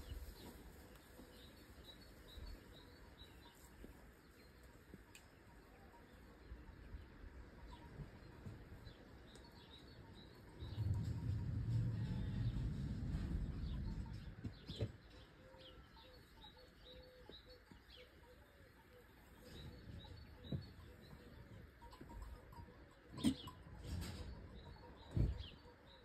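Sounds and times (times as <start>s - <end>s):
birds chirping: 0.0s - 26.0s
low rumble: 10.6s - 14.5s.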